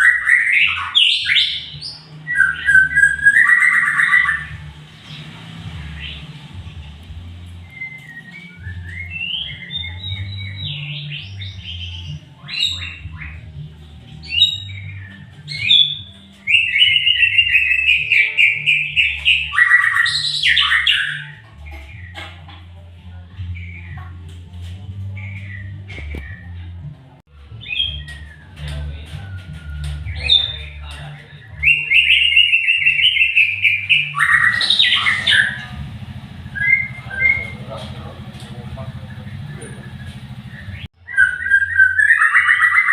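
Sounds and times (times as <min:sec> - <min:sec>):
songbird singing whistled phrases: 0:00.0 - 0:05.3, 0:07.6 - 0:13.6, 0:14.2 - 0:22.2, 0:27.5 - 0:35.8, 0:36.5 - 0:37.7, 0:39.4 - 0:42.9
low hum: 0:34.2 - 0:40.9.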